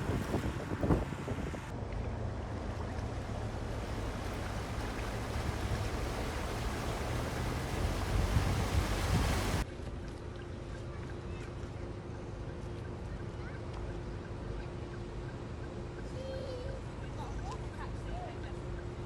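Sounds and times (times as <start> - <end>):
wind on microphone: 0.0 - 1.7, 3.2 - 9.6
low hum: 0.0 - 9.6.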